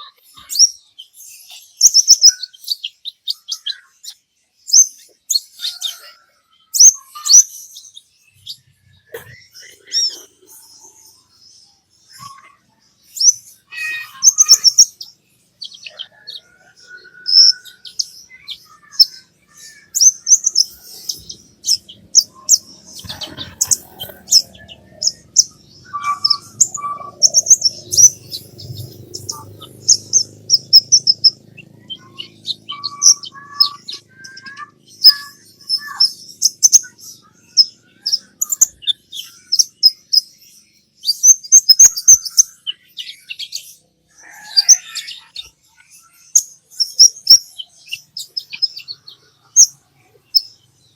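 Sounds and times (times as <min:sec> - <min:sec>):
bird chattering song: 0:00.0 - 0:50.9.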